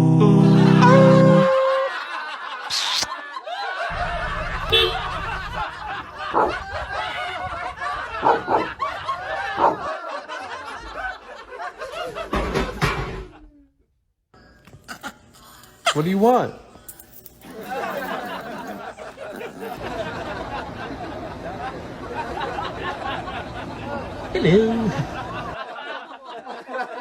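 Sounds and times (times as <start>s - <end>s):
people laughing: 0.3s - 13.6s, 17.4s - 27.0s.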